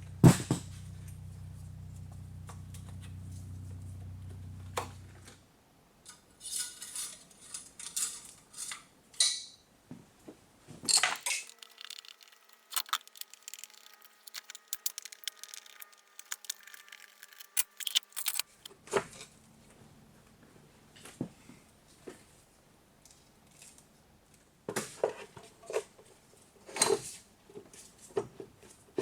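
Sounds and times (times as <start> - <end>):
metal tools clinking: 11.0 - 18.7.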